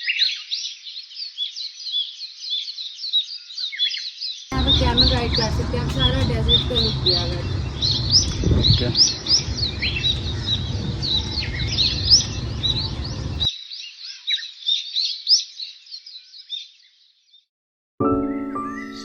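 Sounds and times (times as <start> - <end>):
small birds chirping: 0.6 - 17.4
low wind rumble: 4.5 - 13.5.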